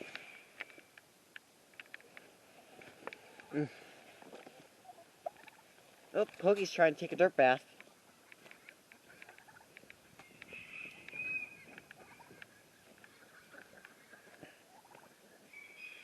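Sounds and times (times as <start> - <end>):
soft high poultry call: 4.8 - 5.7, 8.0 - 16.0.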